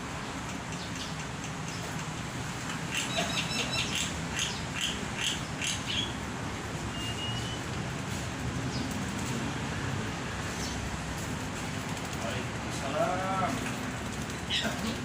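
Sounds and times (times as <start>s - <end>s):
bird chirping: 2.9s - 6.2s, 6.9s - 7.7s
bird whistle: 6.9s - 7.7s.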